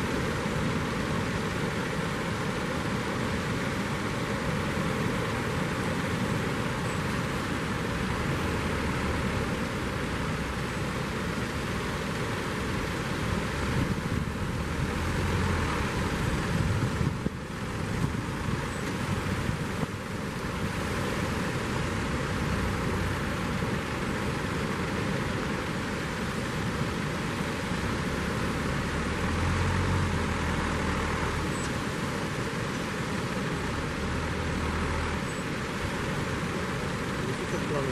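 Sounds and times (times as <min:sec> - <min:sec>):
wind on microphone: 0:13.3 - 0:22.2.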